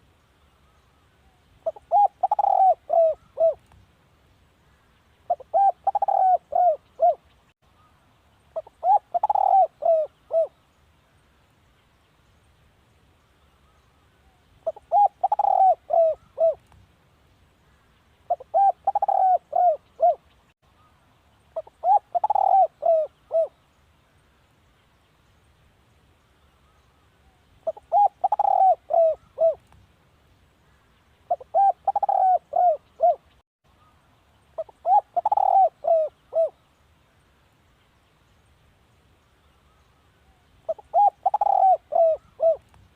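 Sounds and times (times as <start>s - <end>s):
dove cooing: 1.6s - 3.6s, 5.3s - 7.2s, 8.6s - 10.6s, 14.6s - 16.6s, 18.3s - 20.2s, 21.6s - 23.6s, 27.6s - 29.6s, 31.3s - 33.2s, 34.6s - 36.6s, 40.7s - 42.6s.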